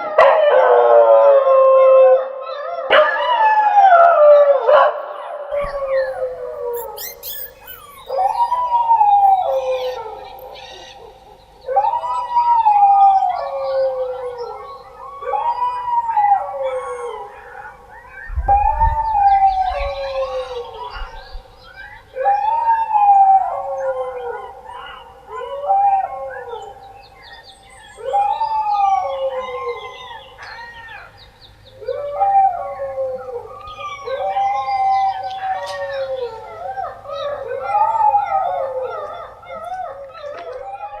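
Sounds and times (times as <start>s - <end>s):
dogs howling: 0.0s - 31.2s, 31.8s - 41.0s
dogs yipping and crying: 4.6s - 18.3s, 31.8s - 41.0s.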